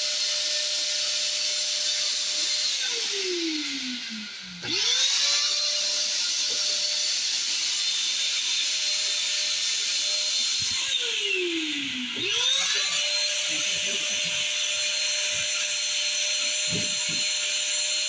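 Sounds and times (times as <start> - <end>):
shop vac motor whine: 0.0 - 18.0.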